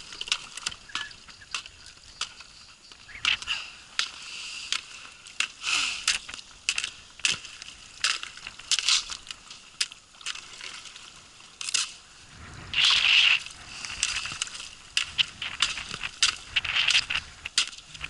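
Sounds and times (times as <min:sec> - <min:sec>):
ice cracking and crunching: 0:03.0 - 0:18.0
sharp knocks on ice: 0:15.0 - 0:17.8.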